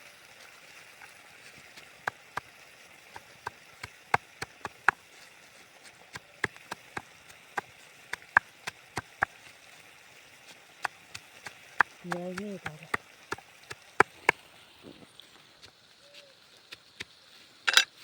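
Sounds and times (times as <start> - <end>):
faint steady hiss: 0.0 - 18.0
knife chopping on wood: 3.2 - 5.0, 6.1 - 9.3.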